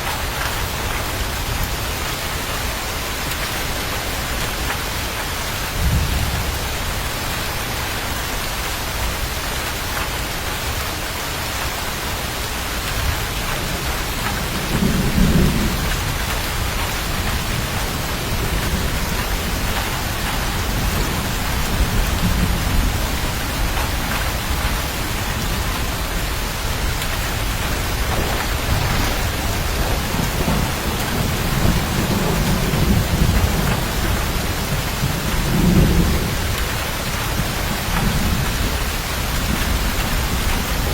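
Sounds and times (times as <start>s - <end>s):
heavy rain: 0.0s - 40.9s
thunder rolling: 5.7s - 8.2s, 13.0s - 40.9s.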